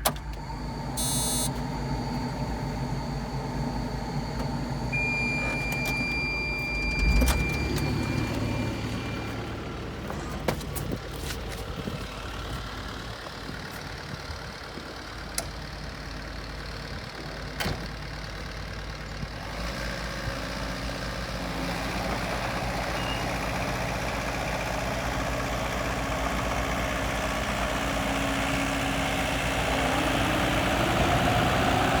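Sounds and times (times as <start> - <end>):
excavator diesel engine running: 0.0 - 32.0
high electronic beep: 1.0 - 1.5, 5.0 - 9.5.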